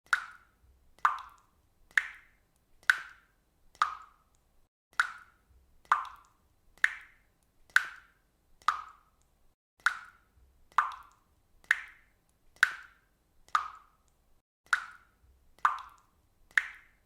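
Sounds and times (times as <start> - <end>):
water drops plopping: 0.1 - 3.2, 3.8 - 4.2, 5.0 - 9.2, 9.8 - 14.0, 14.7 - 17.0.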